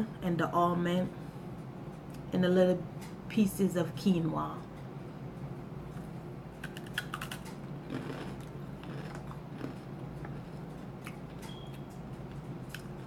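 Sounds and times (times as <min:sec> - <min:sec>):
crunchy food chewing: 0:06.6 - 0:11.6, 0:12.3 - 0:13.0.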